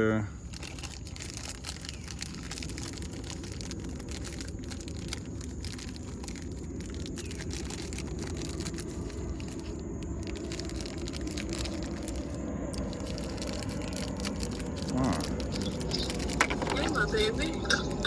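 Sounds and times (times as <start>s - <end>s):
low background rumble: 0.0s - 18.0s
small metal bolts clicking and rattling: 0.4s - 18.0s.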